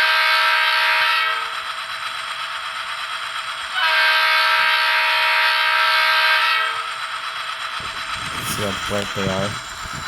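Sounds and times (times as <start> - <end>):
diesel locomotive idling from small speaker: 0.0 - 10.0
multi-tone air horn blast: 3.8 - 6.8.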